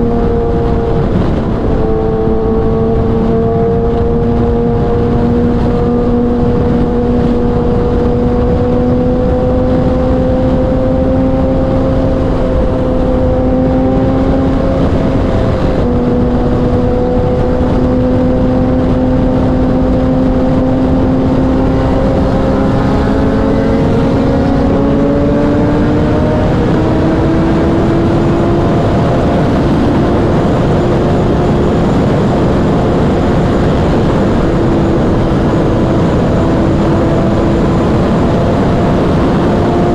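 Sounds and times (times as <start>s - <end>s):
sport bike engine at high revs: 0.0s - 39.9s
wind and road noise: 0.0s - 39.9s.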